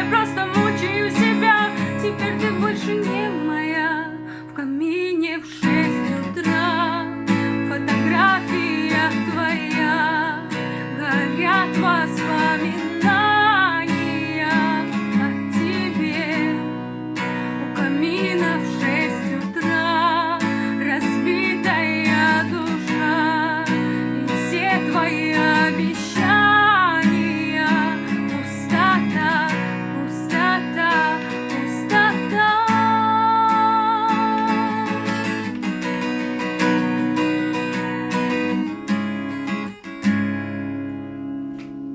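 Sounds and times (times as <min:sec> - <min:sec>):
woman singing with vibrato: 0:00.0 - 0:35.5
strummed acoustic guitar: 0:00.0 - 0:41.9.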